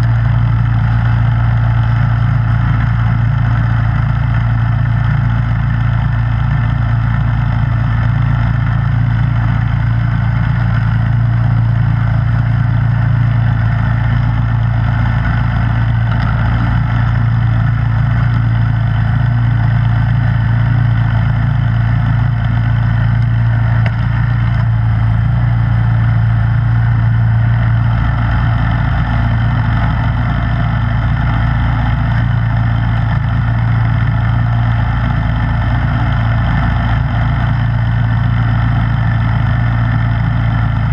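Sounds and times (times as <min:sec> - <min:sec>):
snowblower engine running: 0:00.0 - 0:40.9.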